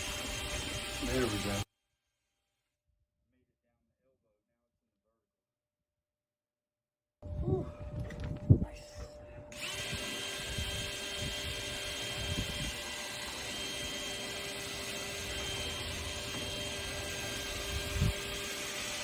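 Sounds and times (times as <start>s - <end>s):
electric motor humming: 0.0s - 1.6s, 9.2s - 19.0s.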